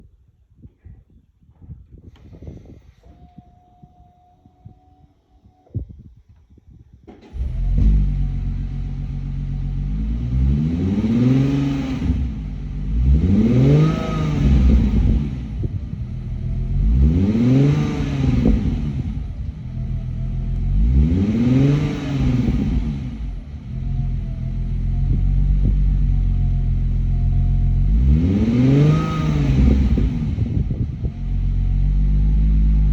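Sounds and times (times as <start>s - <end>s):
exhaust cracks: 7.0s - 19.7s
car engine starting and revving: 7.1s - 32.9s.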